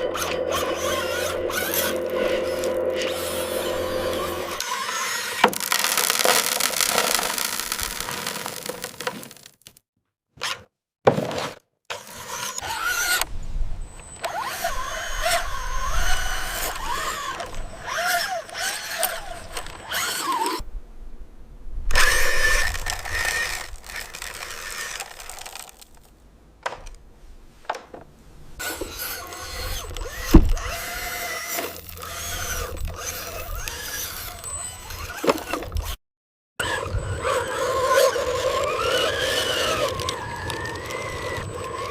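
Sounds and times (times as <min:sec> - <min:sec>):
small electric motors whining: 0:00.0 - 0:09.4, 0:11.9 - 0:20.6, 0:21.9 - 0:26.1, 0:28.6 - 0:36.0, 0:36.6 - 0:41.9
scraping: 0:00.0 - 0:09.8.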